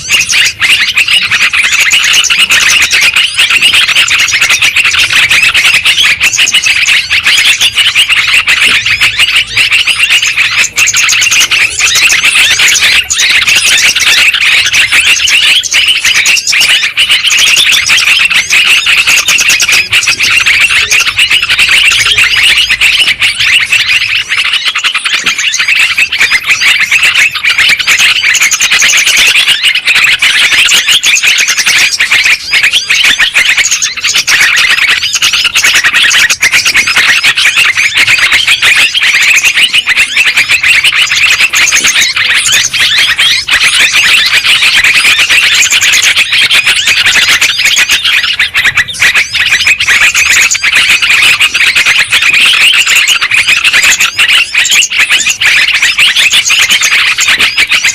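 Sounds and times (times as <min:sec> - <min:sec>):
bulbuls chattering and calling: 0:00.0 - 0:57.9.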